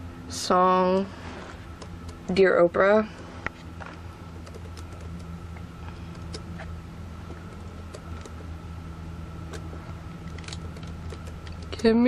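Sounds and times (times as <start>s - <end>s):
low electrical hum: 0.0s - 12.0s
computer keyboard clicks: 4.4s - 5.3s.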